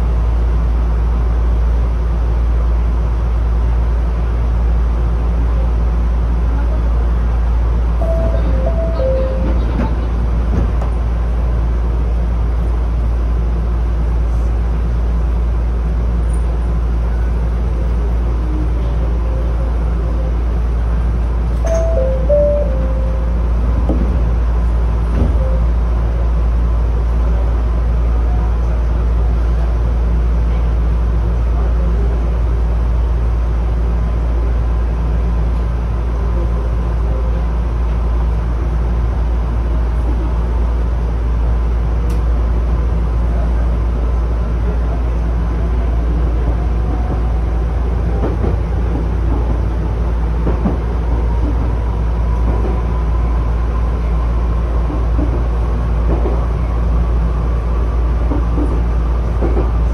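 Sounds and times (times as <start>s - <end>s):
wheels rumbling on rail: 0.0s - 59.9s.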